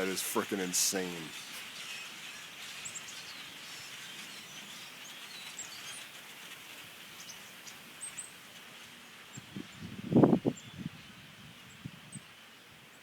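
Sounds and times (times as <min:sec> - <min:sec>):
hiss of distant bird calls: 0:00.0 - 0:13.0.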